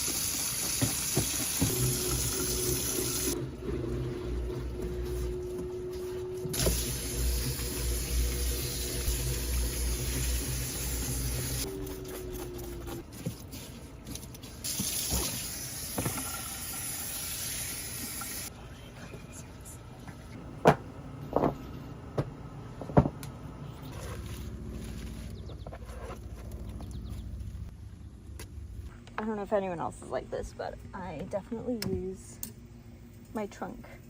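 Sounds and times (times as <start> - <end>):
water running: 0.0 - 3.4, 6.5 - 11.7, 13.4 - 18.5.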